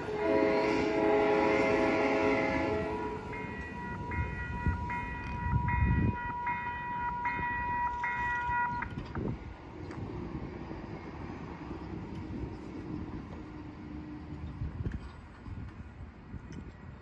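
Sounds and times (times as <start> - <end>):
railroad crossing bell ringing: 0.0 - 9.1
electric train rumbling: 0.0 - 17.0.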